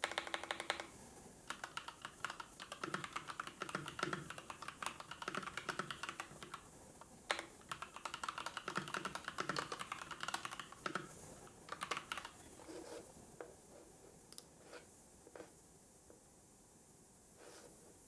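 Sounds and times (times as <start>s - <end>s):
typing on computer keyboard: 0.0s - 12.4s.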